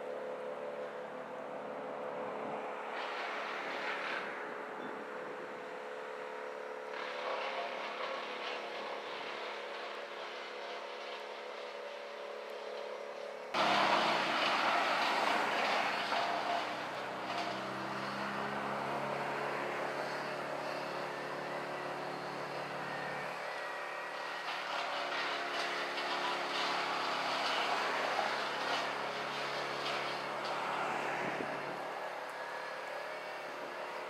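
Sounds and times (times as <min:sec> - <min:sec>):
engine running: 0:00.0 - 0:34.0.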